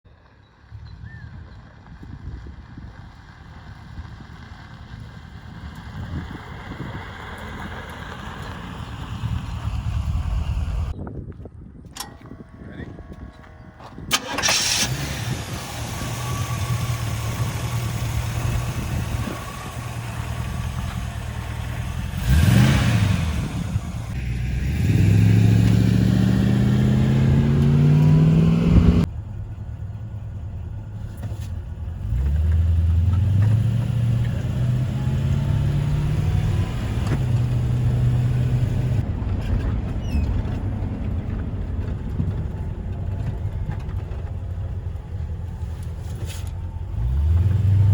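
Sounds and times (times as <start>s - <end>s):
pickup truck engine revving: 14.1s - 29.1s, 31.9s - 39.0s, 46.9s - 47.9s.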